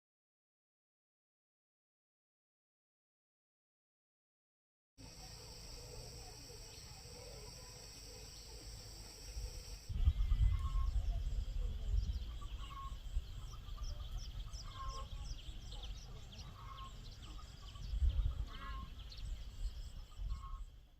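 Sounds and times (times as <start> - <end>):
farm animals calling: 5.0 - 11.2, 12.2 - 20.8
steady hiss: 5.0 - 13.8
wind rumble on microphone: 9.9 - 15.4, 17.5 - 20.9.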